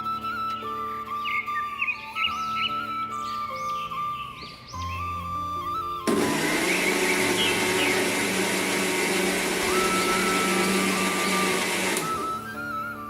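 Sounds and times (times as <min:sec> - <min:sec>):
mixer grinder motor hum: 0:06.1 - 0:12.6.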